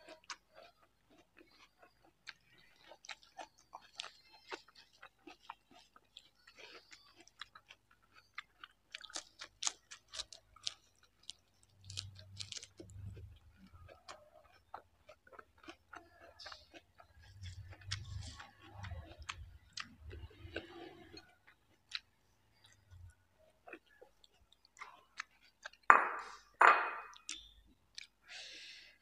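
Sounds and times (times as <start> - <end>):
crunching lettuce: 0.0 - 22.9
chewing rice: 0.0 - 25.9, 27.1 - 29.0.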